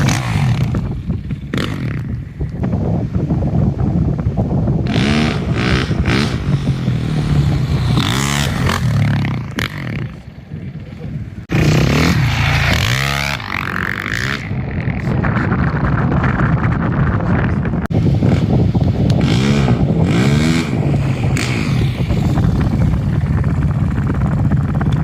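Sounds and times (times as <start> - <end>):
vehicle engine revving hard: 4.9 - 9.4.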